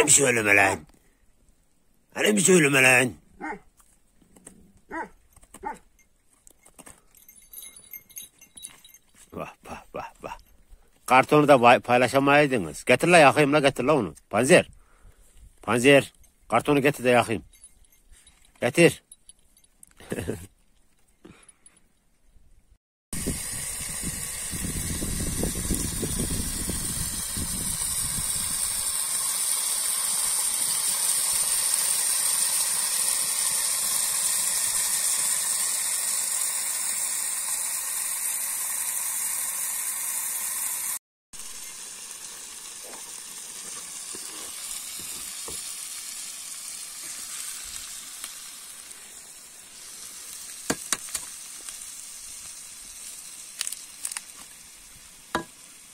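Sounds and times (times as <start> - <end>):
food sizzling in a pan: 23.2 - 55.9.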